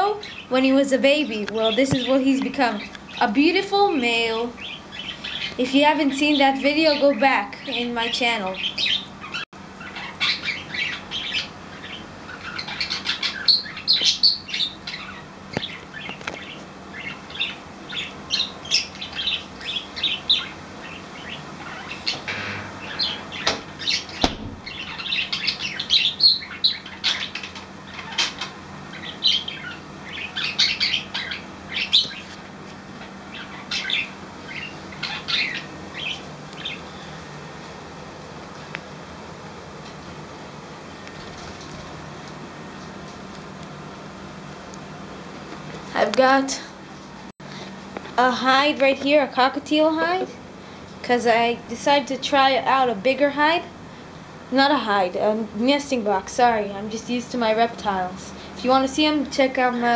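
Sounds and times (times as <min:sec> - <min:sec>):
budgies chirping and chattering: 0:00.1 - 0:32.4, 0:33.0 - 0:37.0.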